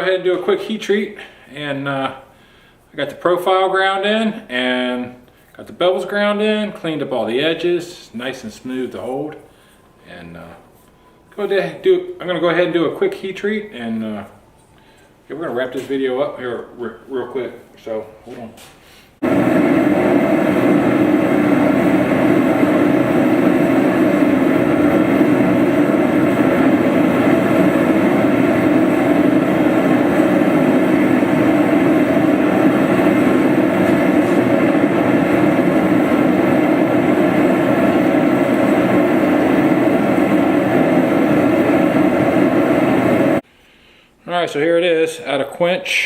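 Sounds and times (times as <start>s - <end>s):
forge burner running: 19.2s - 43.4s.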